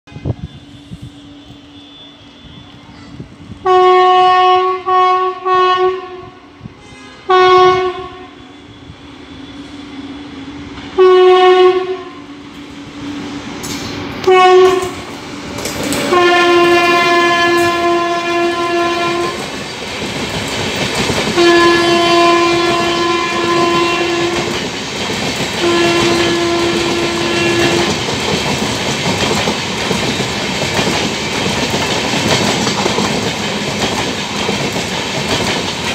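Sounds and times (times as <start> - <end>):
train wheels rushing on rail: 0.1 - 35.9
locomotive horn blasts: 3.6 - 10.0, 11.0 - 12.3, 14.2 - 15.0, 16.0 - 19.4, 21.4 - 24.6, 25.6 - 28.0.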